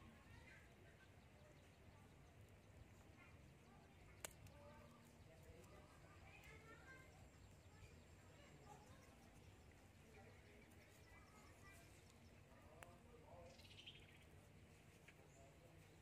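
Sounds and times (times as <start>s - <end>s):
distant bird chirps: 0.0s - 16.0s
faint click: 4.1s - 5.8s, 12.0s - 13.0s.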